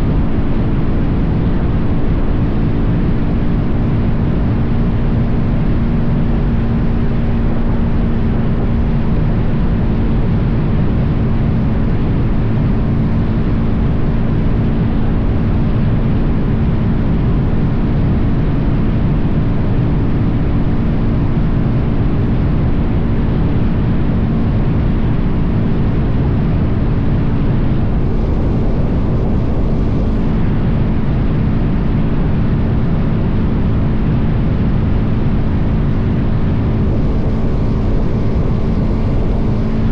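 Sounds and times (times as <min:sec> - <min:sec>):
motorcycle engine cruising: 0:12.0 - 0:39.9
wind buffeting microphone: 0:19.0 - 0:39.9.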